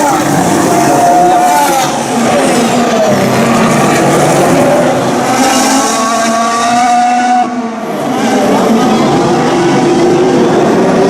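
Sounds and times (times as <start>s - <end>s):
racing car engines at speed: 0.0s - 11.0s.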